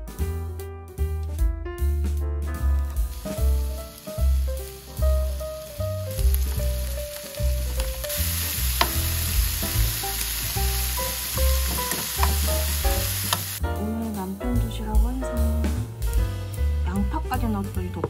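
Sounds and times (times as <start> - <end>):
background music with bass line: 0.0 - 18.0
food sizzling in a frying pan: 3.0 - 13.6.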